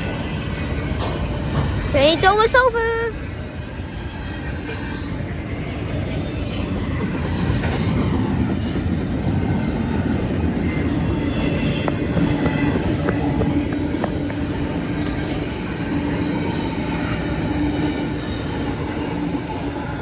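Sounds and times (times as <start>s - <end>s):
train cars rumbling past: 0.0s - 20.0s
train wheel clacks: 0.0s - 20.0s.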